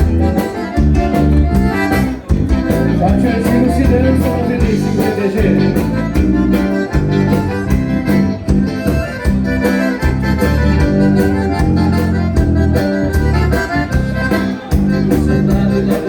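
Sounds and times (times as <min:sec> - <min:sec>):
accordion: 0:00.0 - 0:16.0
band playing dance music: 0:00.0 - 0:16.0.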